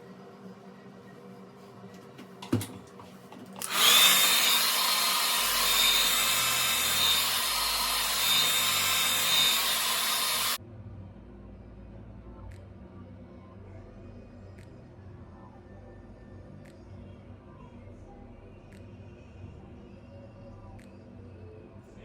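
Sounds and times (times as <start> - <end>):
hair dryer blowing: 3.5 - 10.6.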